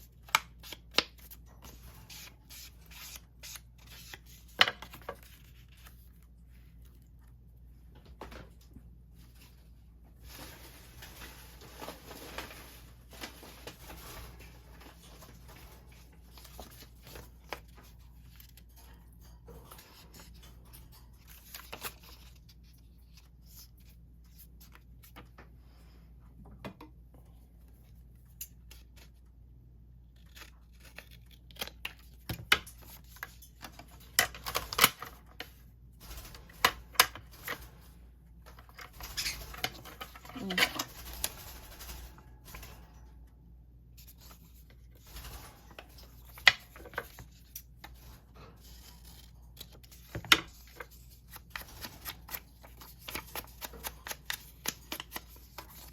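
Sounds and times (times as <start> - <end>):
paper rustling and tearing: 0.1 - 6.3, 30.1 - 32.2, 44.0 - 55.9.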